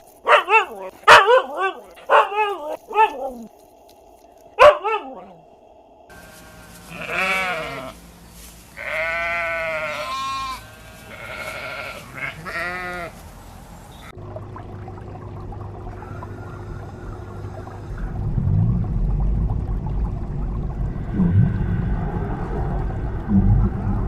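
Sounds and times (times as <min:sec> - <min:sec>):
dog bark: 0:00.2 - 0:03.5, 0:04.6 - 0:05.3
livestock bleating: 0:06.7 - 0:08.0, 0:08.7 - 0:13.2.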